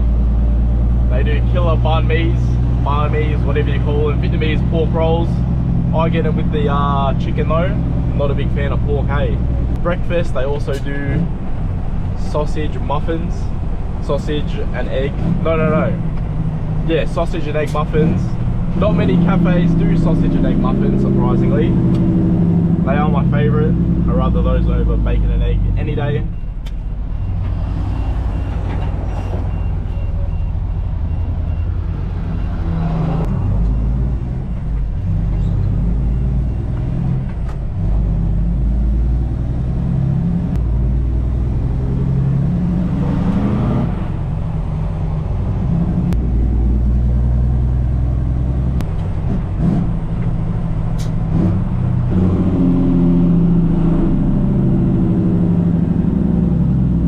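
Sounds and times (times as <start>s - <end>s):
truck diesel engine running: 0.0s - 42.7s.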